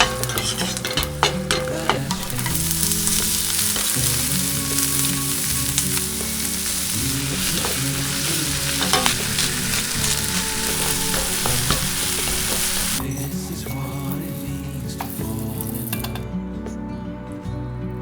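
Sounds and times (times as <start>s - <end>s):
utensil clicking against pan: 0.0s - 5.1s, 5.7s - 13.0s
food sizzling in a pan: 0.0s - 16.1s
pop song: 0.0s - 18.0s.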